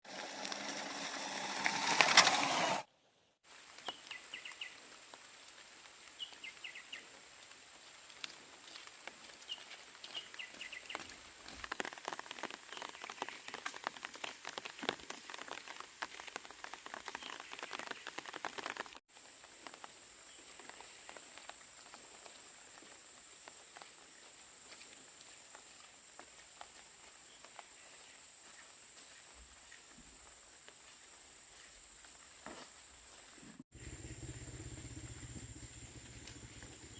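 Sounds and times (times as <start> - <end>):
small birds chirping: 3.8 - 4.9, 6.1 - 7.2, 9.4 - 11.2, 12.4 - 13.8, 16.7 - 18.3, 33.2 - 36.9.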